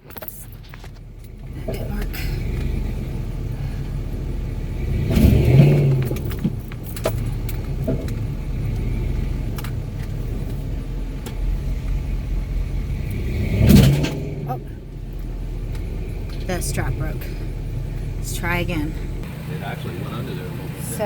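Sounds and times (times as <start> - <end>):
pickup truck engine revving: 0.0 - 21.0.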